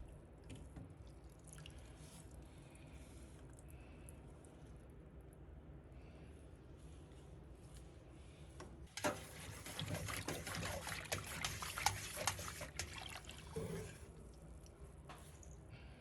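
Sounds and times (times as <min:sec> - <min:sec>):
water trickling and splashing: 0:09.0 - 0:14.0.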